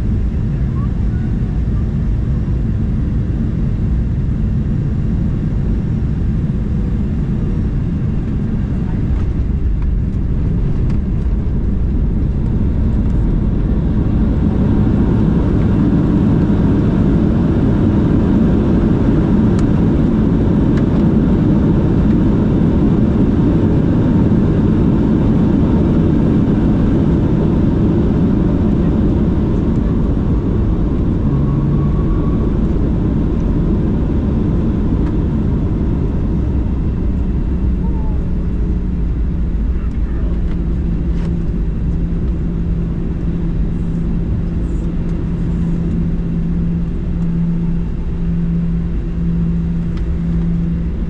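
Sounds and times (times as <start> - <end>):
jet engine rumble: 0.0 - 51.0.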